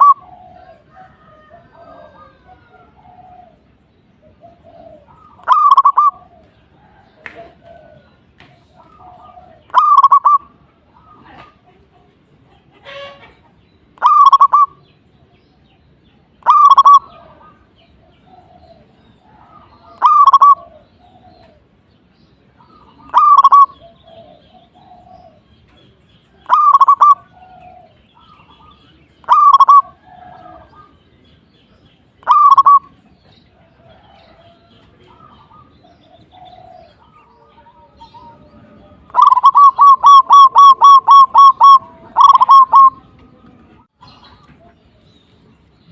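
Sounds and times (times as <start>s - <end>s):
dove cooing: 0.0s - 11.7s, 14.0s - 14.8s, 16.4s - 21.8s, 22.4s - 31.0s, 32.2s - 43.4s
faint low cooing: 0.0s - 13.4s.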